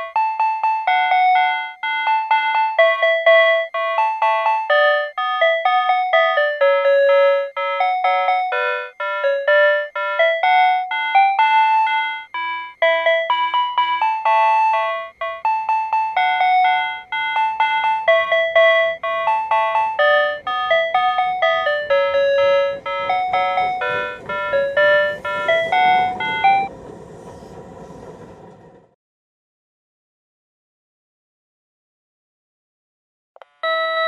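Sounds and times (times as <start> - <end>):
electronic bell-like melody: 0.0 - 26.7, 33.4 - 34.0.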